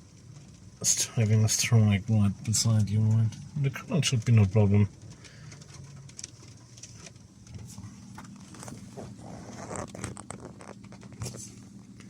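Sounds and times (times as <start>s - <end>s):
rain falling: 0.0s - 9.2s
raindrops tapping close by: 0.0s - 12.0s
steady low hum: 0.0s - 12.0s.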